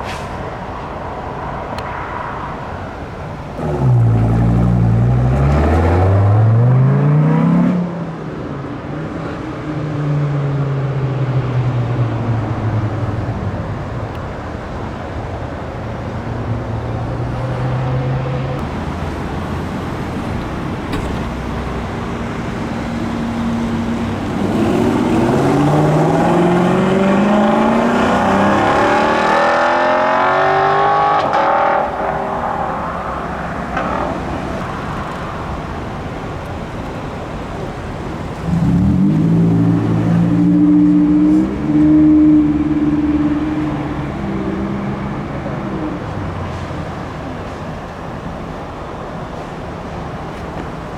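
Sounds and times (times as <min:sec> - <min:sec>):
car engines accelerating and revving: 0:00.0 - 0:50.9.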